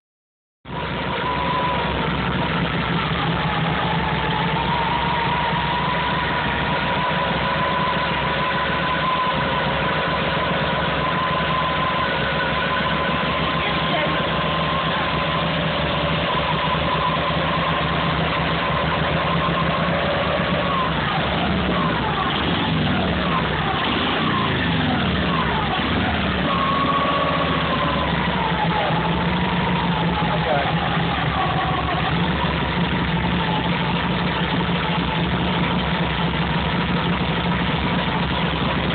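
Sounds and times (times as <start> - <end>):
v-twin engine idling and revving: 0.7 - 38.9.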